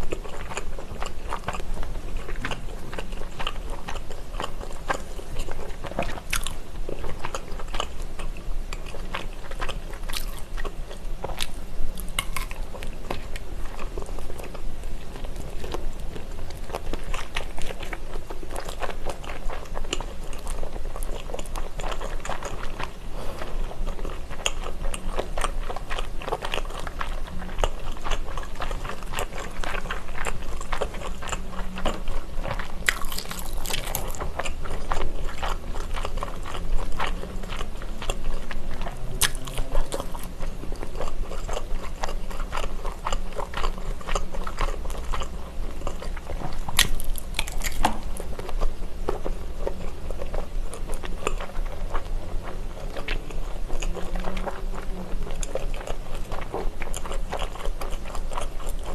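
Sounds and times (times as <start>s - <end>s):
person chewing with wet clicks: 0.0s - 58.9s.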